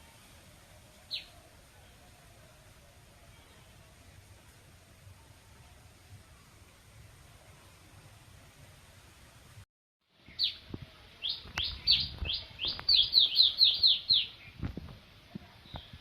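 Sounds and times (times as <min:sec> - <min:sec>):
faint hiss: 0:00.0 - 0:16.0
bird chirping: 0:01.1 - 0:01.4, 0:10.2 - 0:10.6, 0:11.2 - 0:14.6.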